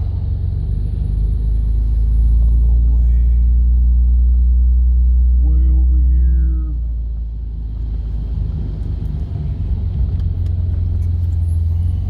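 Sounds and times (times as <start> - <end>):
low car exhaust drone: 0.0 - 12.0.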